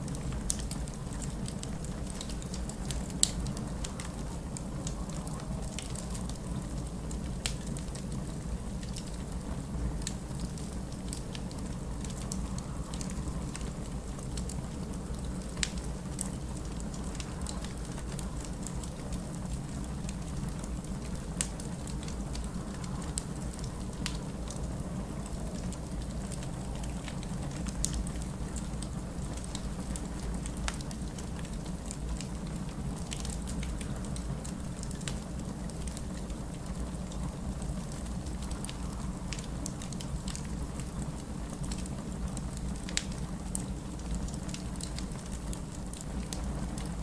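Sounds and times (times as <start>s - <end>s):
wood fire crackling: 0.0s - 47.0s.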